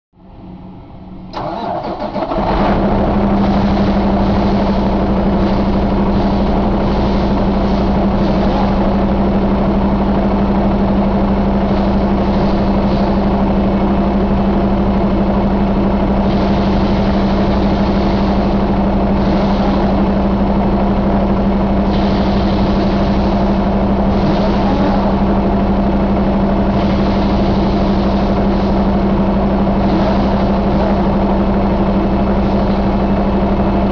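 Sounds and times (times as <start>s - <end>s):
diesel engine idling: 0.2s - 33.9s
diesel engine starter cranking: 1.3s - 14.1s.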